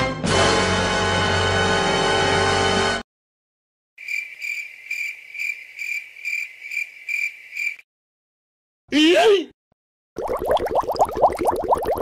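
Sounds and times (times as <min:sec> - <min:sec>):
cricket chirping: 0:04.0 - 0:07.8
person shouting: 0:08.9 - 0:09.6.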